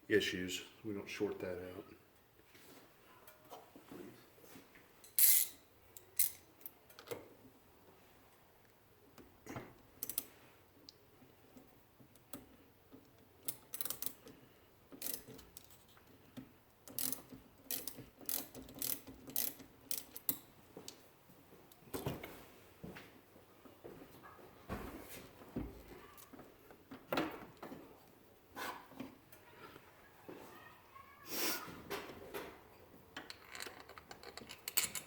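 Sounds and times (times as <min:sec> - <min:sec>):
metal tools clinking: 0:05.0 - 0:06.4, 0:33.2 - 0:35.0
socket ratchet clicking: 0:05.2 - 0:06.7, 0:13.4 - 0:14.2, 0:15.0 - 0:15.8, 0:16.9 - 0:20.4.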